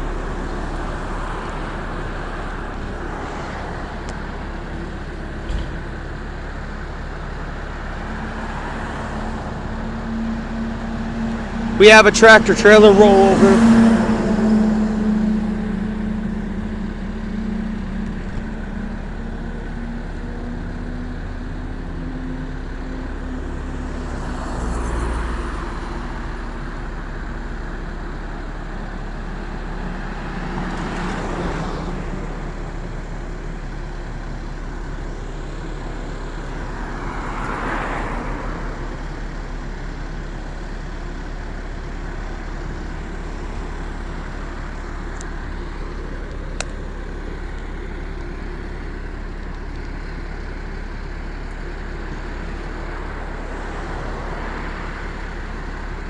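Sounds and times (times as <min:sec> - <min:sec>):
steady low traffic rumble: 0:00.0 - 0:56.0
vehicles passing by: 0:00.0 - 0:56.0.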